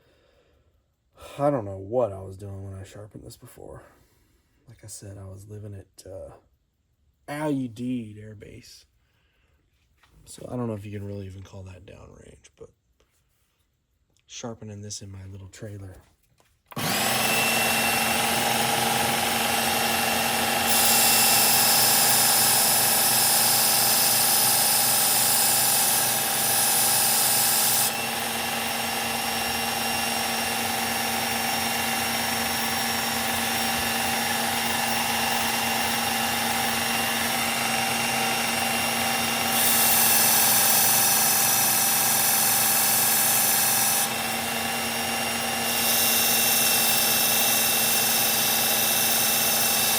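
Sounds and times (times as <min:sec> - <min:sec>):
blade grinding on abrasive: 0:16.7 - 0:49.9
electric knife sharpener running: 0:16.7 - 0:49.9.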